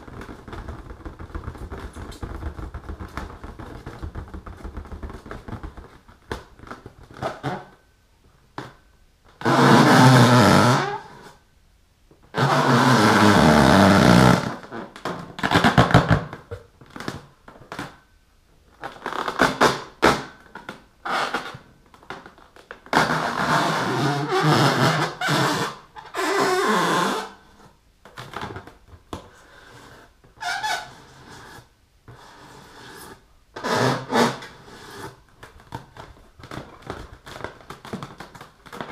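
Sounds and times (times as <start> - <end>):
fingernails scratching balloon: 9.4 - 11.4, 12.4 - 14.7, 22.9 - 27.7, 29.6 - 38.8.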